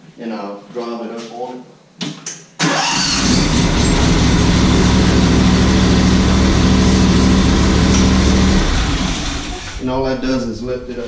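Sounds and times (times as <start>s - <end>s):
mower engine running: 2.9s - 9.8s.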